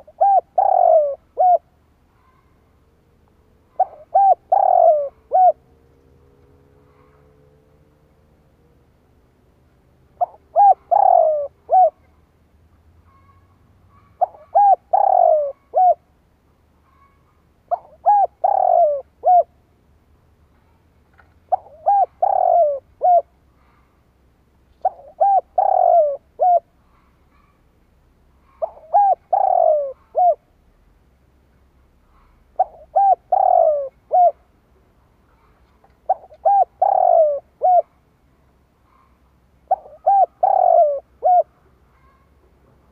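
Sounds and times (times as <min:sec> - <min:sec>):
dove cooing: 0:00.0 - 0:02.4, 0:03.6 - 0:05.8, 0:10.2 - 0:12.1, 0:13.1 - 0:16.1, 0:16.9 - 0:19.6, 0:21.5 - 0:23.8, 0:24.8 - 0:27.6, 0:28.4 - 0:30.6, 0:32.2 - 0:34.5, 0:35.4 - 0:38.0, 0:38.9 - 0:42.2.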